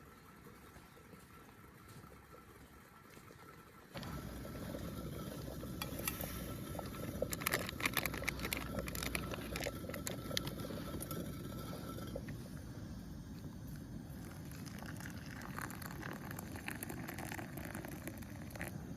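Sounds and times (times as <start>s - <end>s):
wood bonfire crackling: 4.0s - 12.5s.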